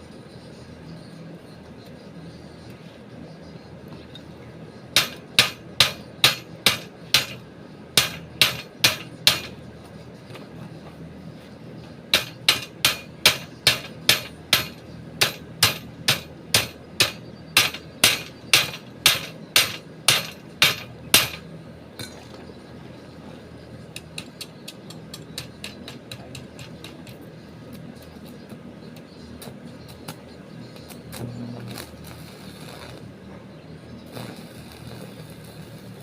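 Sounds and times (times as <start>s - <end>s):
hammer blows: 12.2s - 21.4s.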